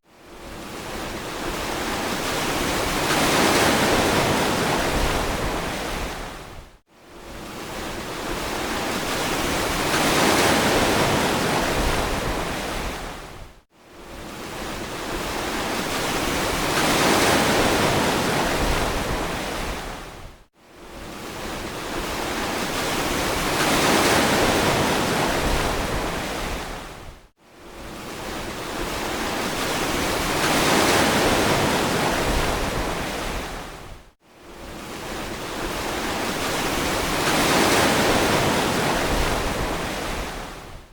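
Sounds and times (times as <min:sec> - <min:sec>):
ocean waves washing in: 0:00.1 - 0:40.9.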